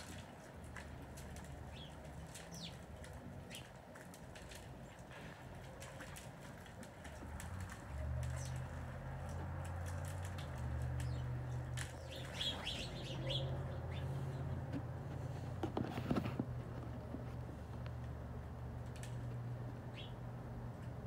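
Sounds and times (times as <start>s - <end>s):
low mechanical hum: 0.0s - 21.0s
high bird chirps: 11.0s - 14.6s.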